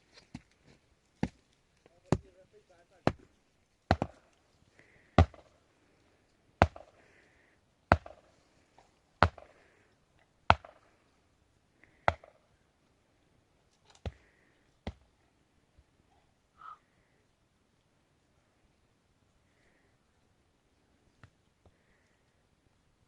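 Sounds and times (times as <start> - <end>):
heavy chopping blows: 3.9 - 4.3, 5.1 - 5.5, 6.6 - 7.0, 9.2 - 9.6.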